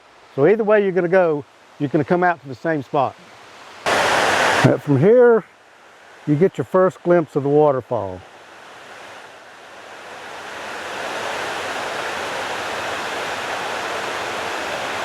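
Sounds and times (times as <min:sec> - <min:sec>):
waterfall rushing: 0:03.5 - 0:15.0.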